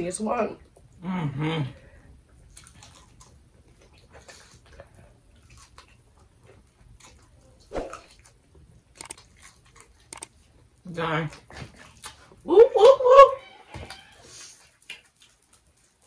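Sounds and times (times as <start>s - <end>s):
wet mouth sounds of eating: 2.5s - 8.4s.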